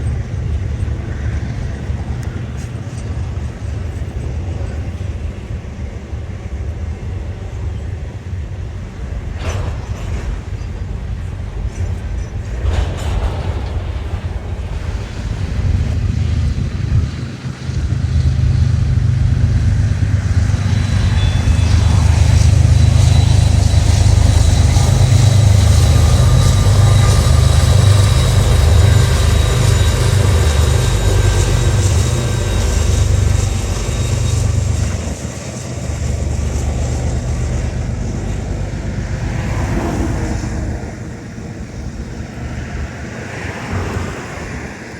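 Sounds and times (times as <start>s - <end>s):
train rumbling past: 0.0s - 44.9s
faint high squeals: 20.3s - 42.0s.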